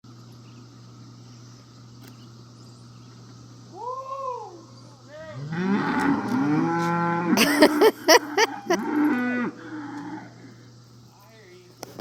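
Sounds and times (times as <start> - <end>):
cattle mooing: 5.4 - 7.4, 8.5 - 10.4.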